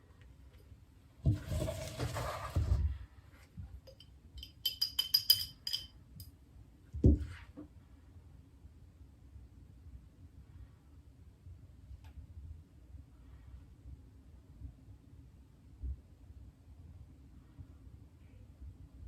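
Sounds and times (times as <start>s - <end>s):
light ringing clinks: 3.8s - 6.3s.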